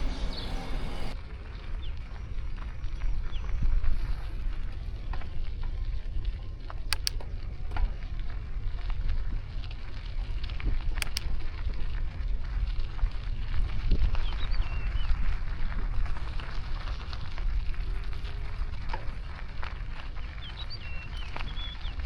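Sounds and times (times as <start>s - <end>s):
bicycle tyre and road noise: 0.0s - 22.0s
steady crackle: 0.0s - 22.0s
wind rumbling on microphone: 0.0s - 22.0s
sharp clicks: 6.9s - 7.4s, 11.0s - 11.5s.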